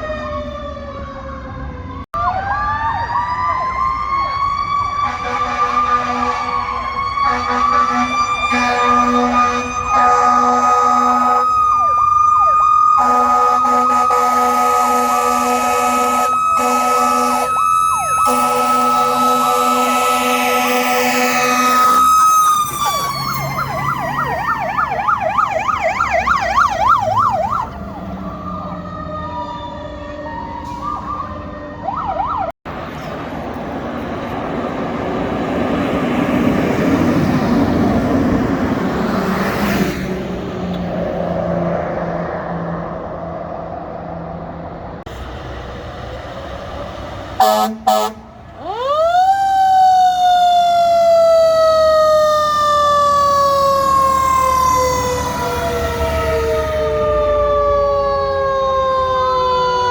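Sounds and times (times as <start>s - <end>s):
wailing siren: 0.0s - 32.6s, 35.4s - 45.1s, 46.8s - 59.9s
warbling siren yelp: 0.0s - 32.6s, 47.4s - 59.9s
truck engine passing: 0.0s - 59.9s
short horn blasts: 5.1s - 11.5s, 13.0s - 17.5s, 18.2s - 22.0s, 47.4s - 48.3s.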